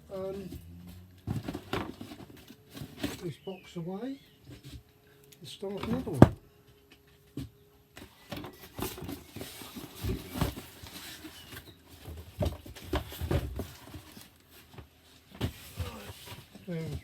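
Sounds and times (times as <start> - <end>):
cardboard boxes knocking and thudding: 0.1 - 3.6, 5.8 - 6.4, 7.3 - 17.0
cardboard rustling: 0.2 - 3.6, 8.0 - 17.0.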